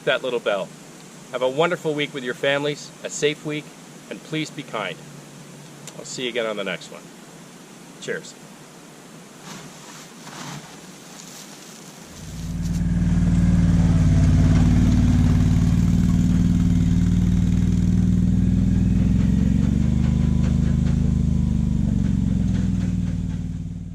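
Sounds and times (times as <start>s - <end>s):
engine running steadily: 12.1s - 23.9s.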